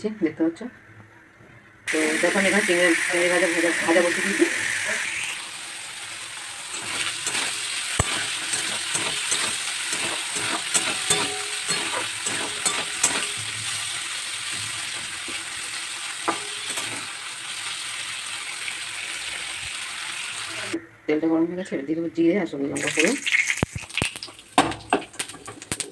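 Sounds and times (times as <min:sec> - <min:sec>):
shrimp sizzling in hot oil: 0:01.9 - 0:20.8, 0:22.8 - 0:25.9
oil popping and clicking: 0:22.8 - 0:25.9.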